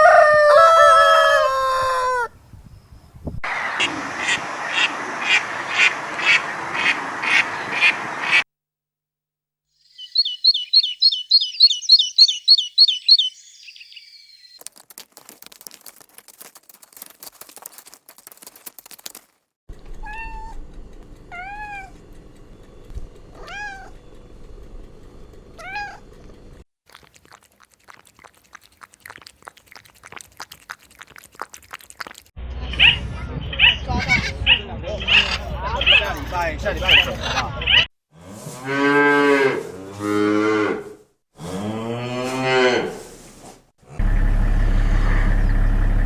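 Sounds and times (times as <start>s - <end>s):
high shrill calls: 9.8s - 14.6s
scratchy clicking: 14.6s - 19.4s
cat meowing: 21.3s - 21.9s, 23.4s - 23.9s, 25.6s - 26.0s.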